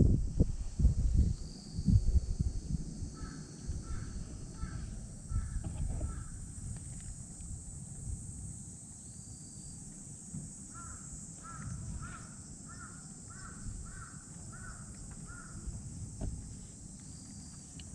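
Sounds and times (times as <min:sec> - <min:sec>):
crow cawing: 0:03.2 - 0:06.4, 0:10.7 - 0:15.7.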